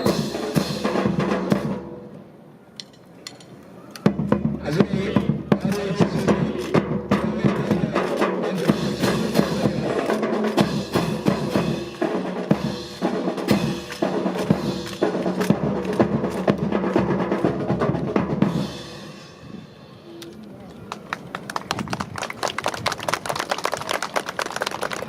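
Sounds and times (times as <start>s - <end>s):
snare and bass drum rolls: 0.0s - 1.9s, 4.1s - 19.0s
marching band music: 0.0s - 2.4s, 3.0s - 20.0s.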